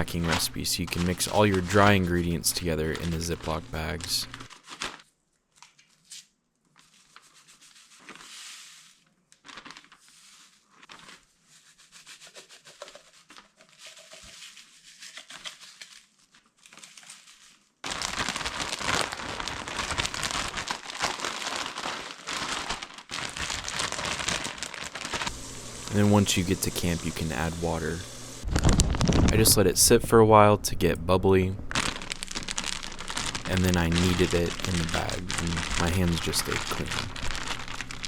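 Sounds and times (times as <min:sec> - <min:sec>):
loud steady hissing: 0:00.0 - 0:04.5, 0:25.3 - 0:28.7, 0:29.3 - 0:38.0
plastic bags crinkling: 0:00.0 - 0:05.1, 0:09.4 - 0:11.2, 0:12.8 - 0:29.7, 0:31.7 - 0:38.0.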